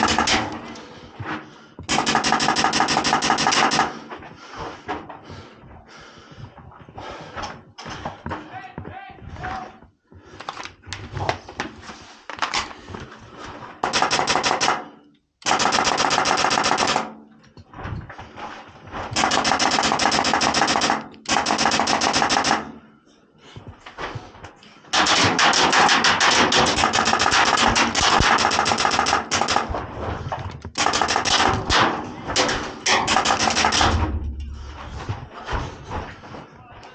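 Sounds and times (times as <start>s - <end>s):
airsoft rifles firing bursts: 0.0s - 0.6s, 1.9s - 4.0s, 13.8s - 17.2s, 19.2s - 22.8s, 25.0s - 29.7s, 30.8s - 34.0s.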